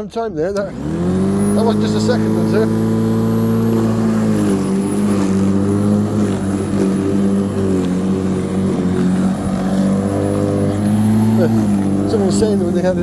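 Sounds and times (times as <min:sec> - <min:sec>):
electric lawnmower motor whine: 0:00.6 - 0:13.0.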